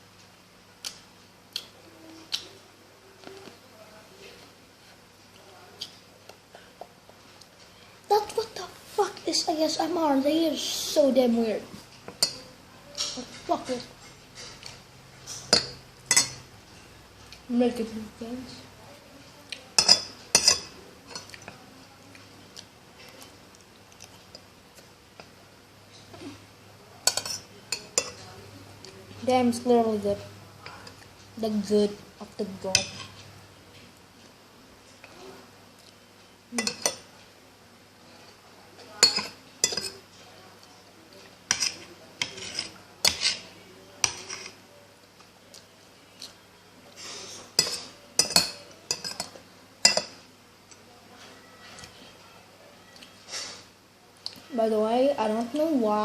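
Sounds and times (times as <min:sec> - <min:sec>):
cutlery clinking on a plate: 0:14.1 - 0:16.4, 0:19.8 - 0:21.4, 0:27.0 - 0:28.2, 0:36.6 - 0:37.1, 0:39.0 - 0:40.0, 0:44.0 - 0:44.6, 0:47.6 - 0:50.8
cutlery clinking on plate: 0:36.6 - 0:37.1, 0:39.0 - 0:40.0, 0:47.6 - 0:50.2.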